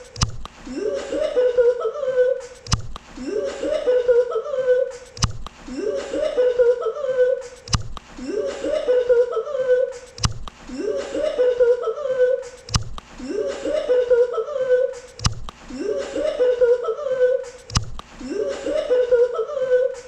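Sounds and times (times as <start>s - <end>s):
sharp click: 0.0s - 0.6s, 2.7s - 3.1s, 5.2s - 5.6s, 7.6s - 8.1s, 10.2s - 10.6s, 12.7s - 13.1s, 15.2s - 15.6s, 17.7s - 18.1s
person laughing: 0.6s - 20.0s.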